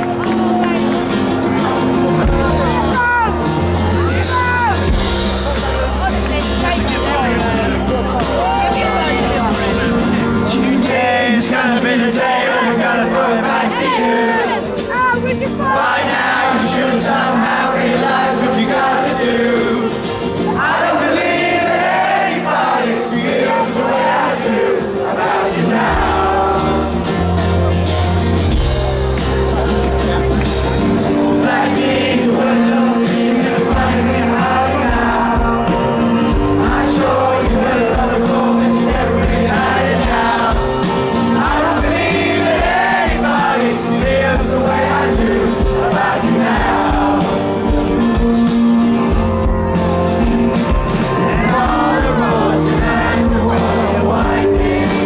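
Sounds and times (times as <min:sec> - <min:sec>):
crowd noise: 0:00.0 - 0:55.0
live rock band playing: 0:00.0 - 0:55.0
person singing: 0:06.9 - 0:14.9, 0:15.7 - 0:30.0, 0:31.2 - 0:48.2, 0:50.9 - 0:55.0.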